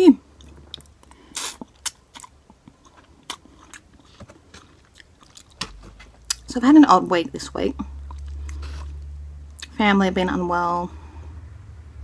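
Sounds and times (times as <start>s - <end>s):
person chewing noodles: 0.3s - 6.5s, 7.9s - 9.7s.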